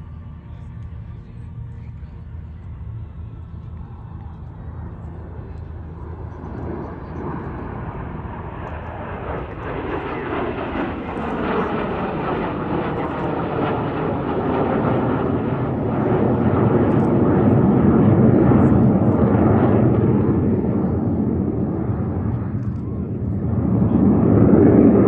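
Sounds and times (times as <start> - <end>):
jet aircraft flying past: 0.0 - 25.0.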